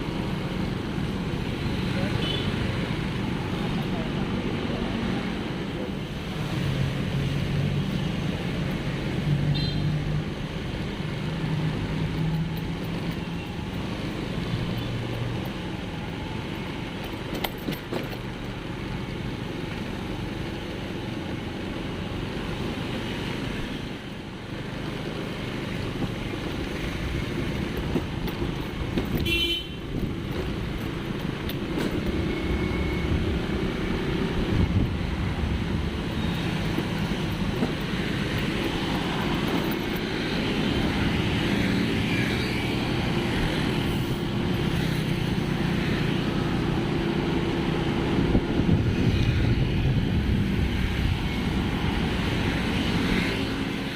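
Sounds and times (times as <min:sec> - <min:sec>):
vehicle engines passing: 0:00.0 - 0:53.9
high horn toot: 0:29.2 - 0:29.9.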